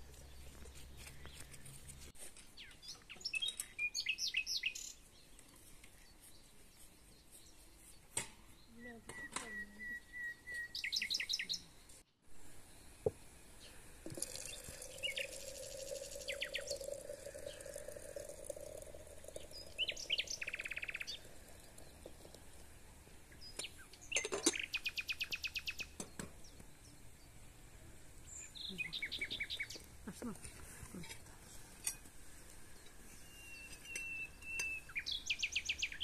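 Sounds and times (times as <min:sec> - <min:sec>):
songbirds chirping rapid high notes: 0:13.6 - 0:22.4, 0:33.2 - 0:36.0.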